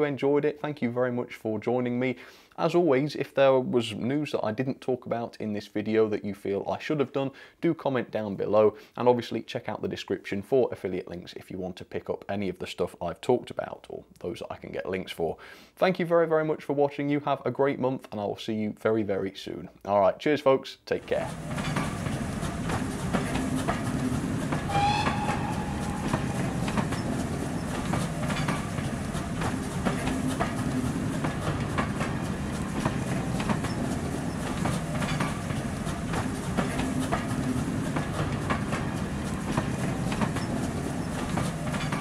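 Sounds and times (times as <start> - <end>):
train rumble and clickety-clack: 21.0 - 42.0
train whistle: 24.7 - 27.2.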